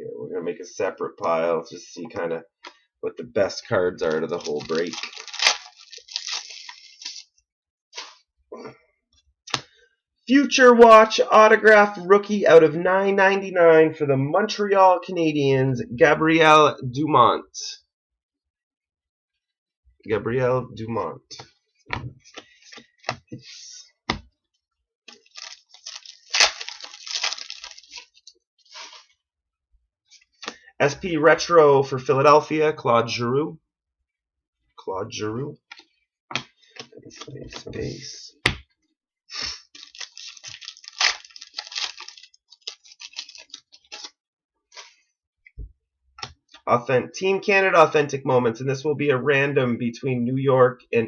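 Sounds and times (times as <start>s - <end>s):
packaging rustling and crinkling: 4.1s - 7.3s, 25.1s - 29.0s, 39.7s - 44.1s.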